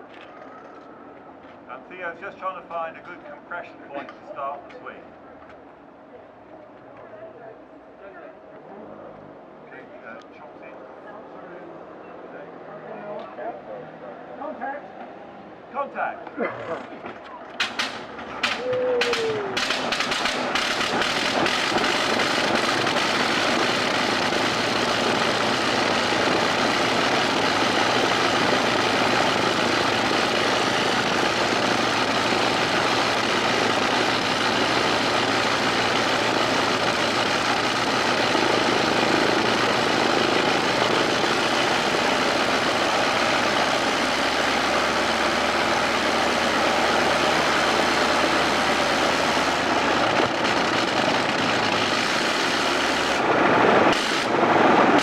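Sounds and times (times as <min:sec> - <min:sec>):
aircraft rotary engine running: 0:17.6 - 0:55.0.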